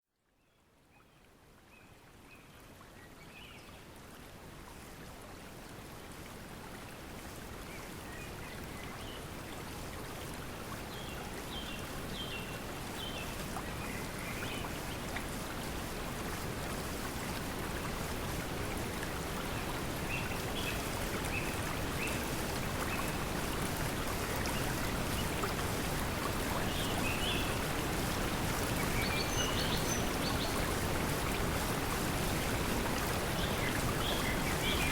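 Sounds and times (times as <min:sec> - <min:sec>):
flowing water: 0:00.3 - 0:34.9.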